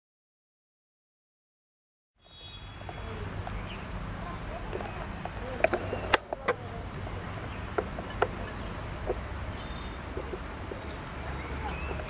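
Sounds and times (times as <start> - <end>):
wheels clicking over rail joints: 2.8 - 12.0.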